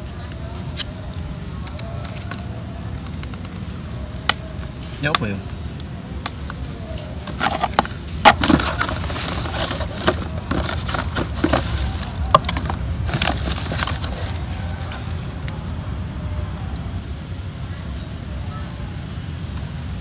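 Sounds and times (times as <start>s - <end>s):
cardboard box handled: 6.2s - 15.1s.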